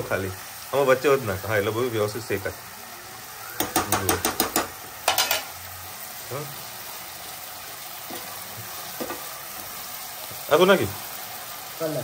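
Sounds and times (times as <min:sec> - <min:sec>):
vegetables sizzling in a wok: 0:00.0 - 0:12.0
utensils clinking against pan: 0:03.6 - 0:05.6, 0:08.1 - 0:08.3, 0:09.0 - 0:09.2.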